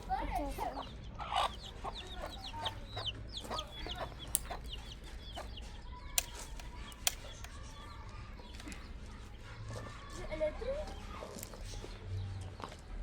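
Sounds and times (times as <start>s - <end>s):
birds peeping: 0.0s - 13.0s
sharp clicks: 4.2s - 4.9s, 6.1s - 7.7s.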